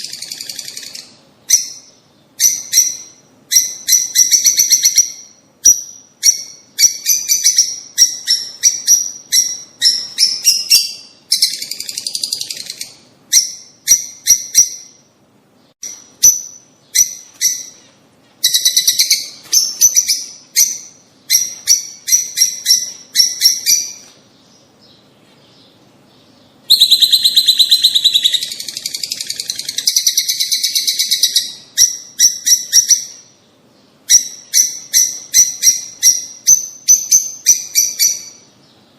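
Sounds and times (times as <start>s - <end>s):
bird trilling: 0.0s - 15.1s, 15.8s - 25.0s, 25.6s - 33.4s, 34.0s - 38.5s
birds chirping: 0.0s - 38.9s.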